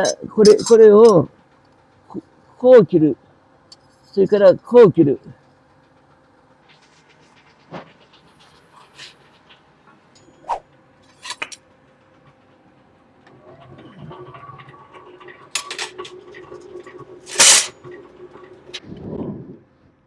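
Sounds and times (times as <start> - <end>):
workshop machine humming: 15.1 - 18.8
metal clicks and knocks: 15.6 - 16.2.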